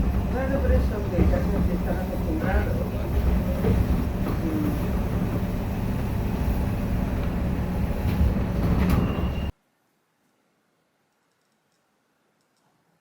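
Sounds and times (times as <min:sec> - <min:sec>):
vehicle rumbling: 0:00.0 - 0:09.5.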